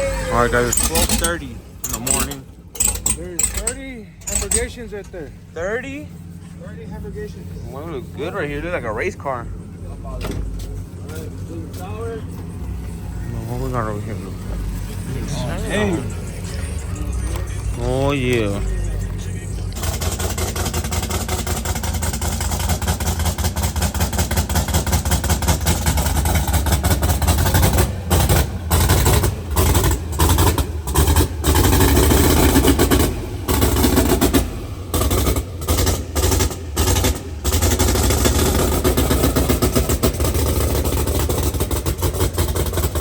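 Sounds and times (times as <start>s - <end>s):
engine running loud: 0.0s - 43.0s.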